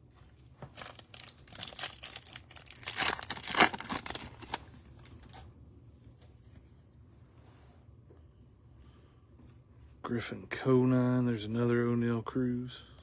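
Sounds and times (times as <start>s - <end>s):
wrapper tearing and crinkling: 0.7s - 5.4s.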